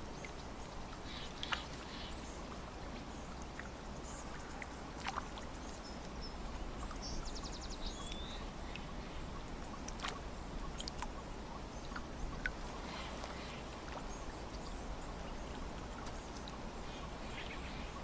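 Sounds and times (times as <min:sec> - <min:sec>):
water lapping at shore: 0:00.0 - 0:18.0
small splashes and clicks: 0:00.2 - 0:02.0, 0:03.3 - 0:06.2, 0:09.6 - 0:11.2, 0:15.4 - 0:16.6.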